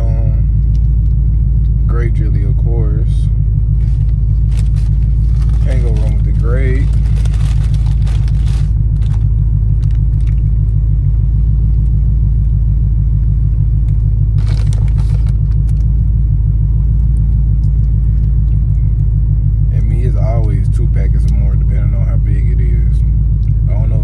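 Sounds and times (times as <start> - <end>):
car engine idling: 0.0 - 24.0
packet tearing and rustling: 3.8 - 10.0, 14.4 - 15.8.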